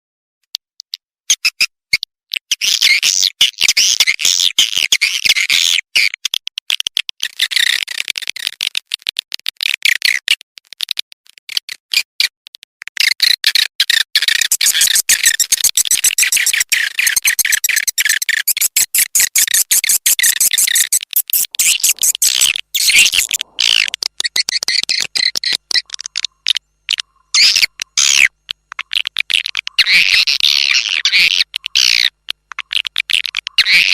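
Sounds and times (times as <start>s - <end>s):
swiftlets chirping and twittering: 14.2s - 33.9s.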